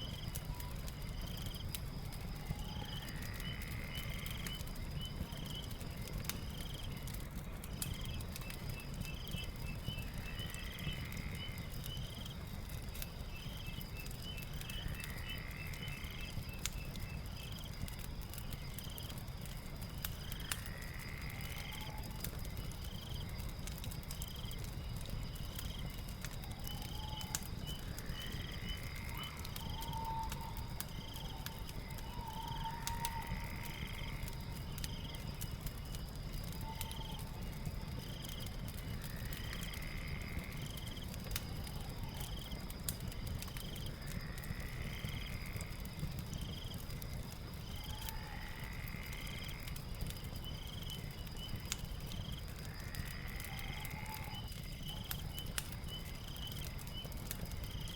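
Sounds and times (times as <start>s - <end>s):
fire crackling: 0.0s - 57.9s
high insect drone: 19.6s - 23.4s, 24.1s - 42.5s, 43.8s - 46.6s, 47.6s - 49.8s, 50.4s - 56.0s.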